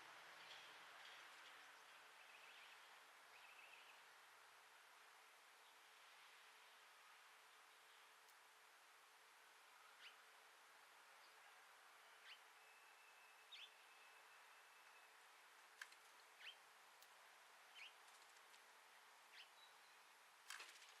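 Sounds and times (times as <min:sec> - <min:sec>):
songbird chirping: 0:00.1 - 0:04.1, 0:09.7 - 0:10.4, 0:11.0 - 0:20.2.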